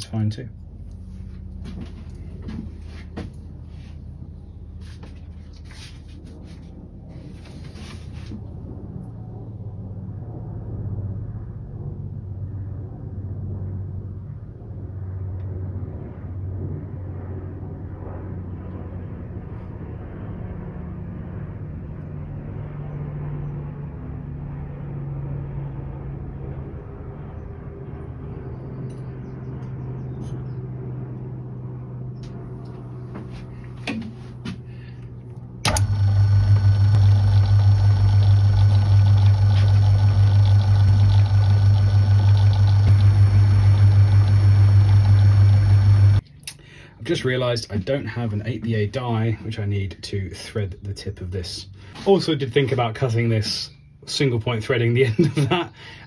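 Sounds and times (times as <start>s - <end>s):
faint low hum: 26.6s - 54.3s
metal lathe motor running: 35.6s - 46.2s.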